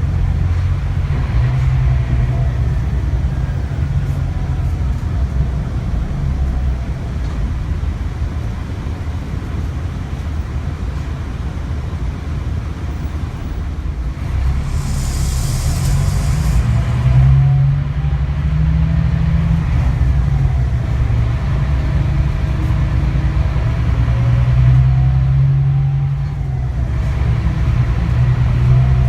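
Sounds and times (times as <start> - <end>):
bus diesel engine droning: 0.0 - 29.0
compressed air hiss: 14.3 - 17.4.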